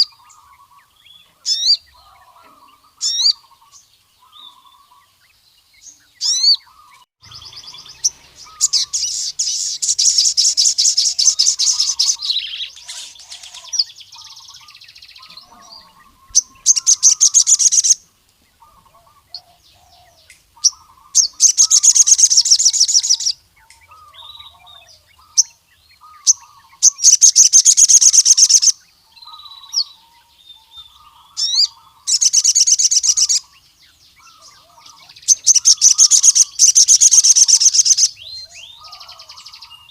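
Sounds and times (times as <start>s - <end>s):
bird high-pitched trills: 0.0s - 18.0s, 18.6s - 39.9s
soft short bird chirps: 5.9s - 18.0s.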